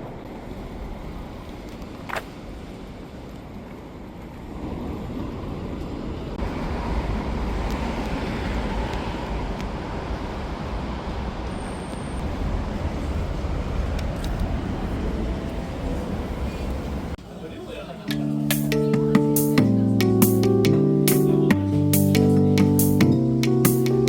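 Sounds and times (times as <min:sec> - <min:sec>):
vehicle traffic rumble: 0:06.4 - 0:17.2.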